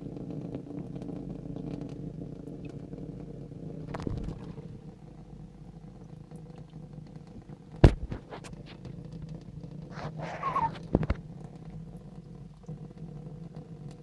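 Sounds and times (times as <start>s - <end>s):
sharp knock: 7.8s - 8.5s
cat purring: 9.6s - 11.4s.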